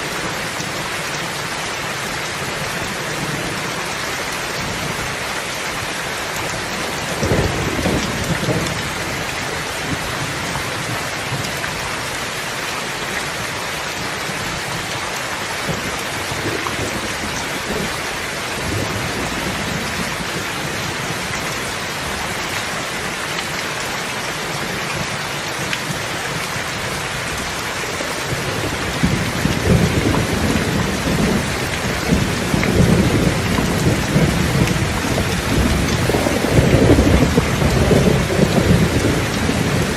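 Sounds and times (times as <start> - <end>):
heavy rain falling: 0.0 - 39.9
rolling thunder: 7.2 - 9.0, 28.3 - 39.9.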